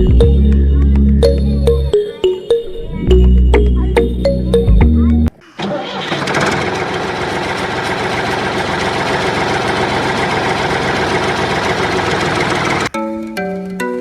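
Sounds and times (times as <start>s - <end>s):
engine idling: 5.4s - 12.9s.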